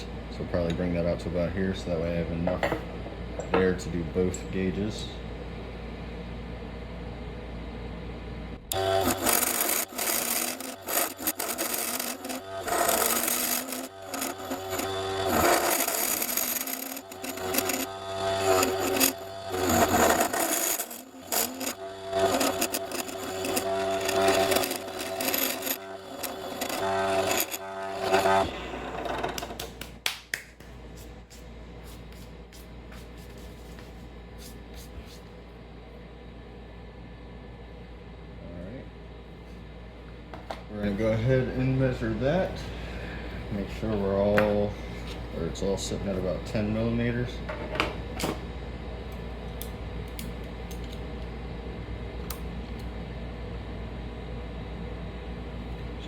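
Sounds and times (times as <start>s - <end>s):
steady low hum: 0.0s - 56.0s
lathe motor whine: 8.6s - 29.7s.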